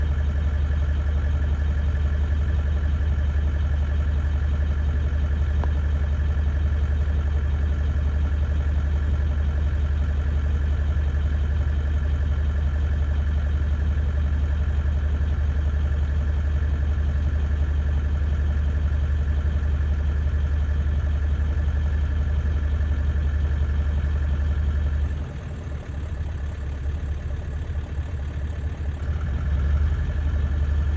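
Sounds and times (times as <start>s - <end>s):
low engine hum: 0.0s - 30.9s.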